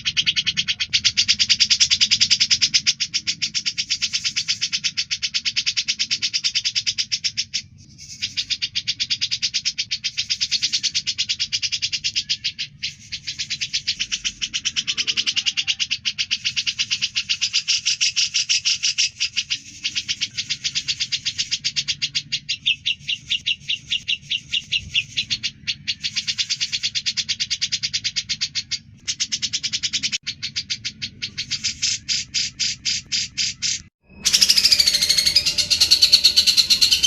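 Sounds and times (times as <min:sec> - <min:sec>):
bird singing rattling trill: 0:00.0 - 0:37.0.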